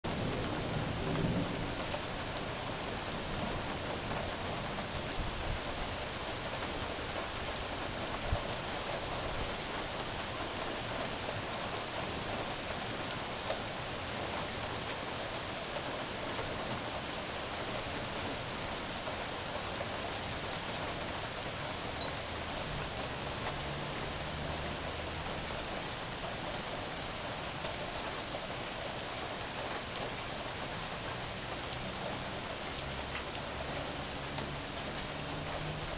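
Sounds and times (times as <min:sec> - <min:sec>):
steady rain falling: 0:00.0 - 0:35.9.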